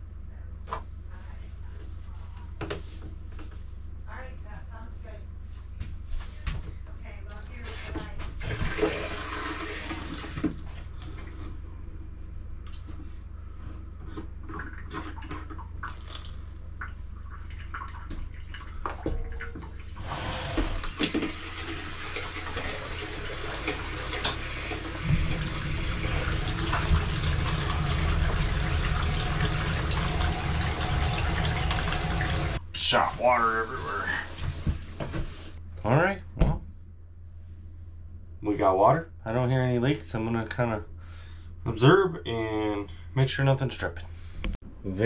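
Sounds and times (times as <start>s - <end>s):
water rushing from tap: 8.4s - 10.6s, 20.0s - 32.6s.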